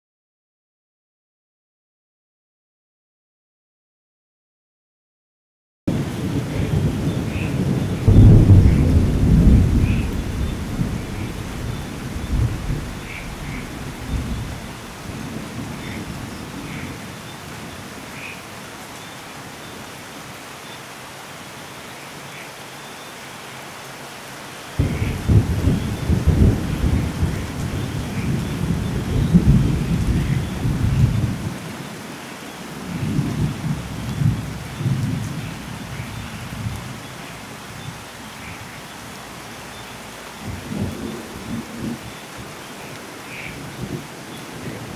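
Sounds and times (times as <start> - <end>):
thunderclap: 5.9 - 16.9, 24.8 - 31.6
thunder rumbling: 5.9 - 17.7, 24.8 - 31.6, 32.8 - 37.2, 40.4 - 42.5
steady rain: 5.9 - 44.9.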